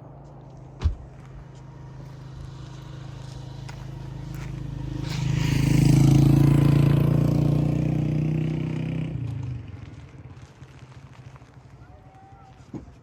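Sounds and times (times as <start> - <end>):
vehicle engine passing: 1.1 - 10.4.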